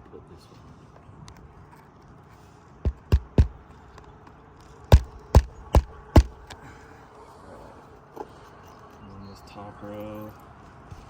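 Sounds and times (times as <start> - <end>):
hammer striking roofing nail: 2.9 - 3.6, 4.9 - 6.6.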